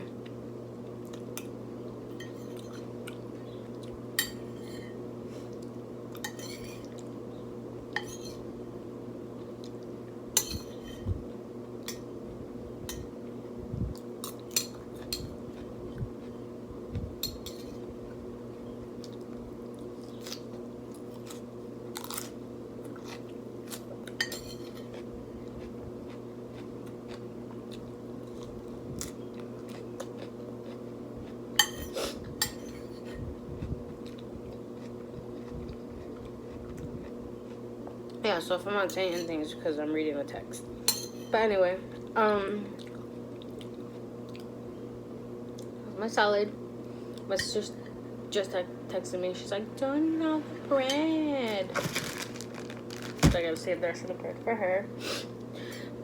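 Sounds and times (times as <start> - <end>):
chewing and crunching: 0.0 - 1.5, 2.4 - 4.0, 13.9 - 16.5, 18.9 - 38.2, 42.7 - 44.6, 51.7 - 53.4
steady low hum: 0.0 - 56.0
cutlery clinking on a plate: 10.4 - 11.0, 40.9 - 41.3.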